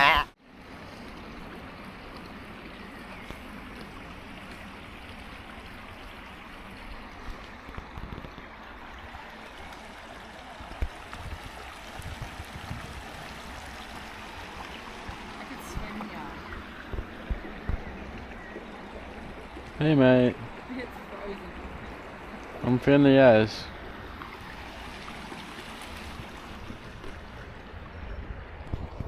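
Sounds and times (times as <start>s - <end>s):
stream water running: 0.0s - 29.0s.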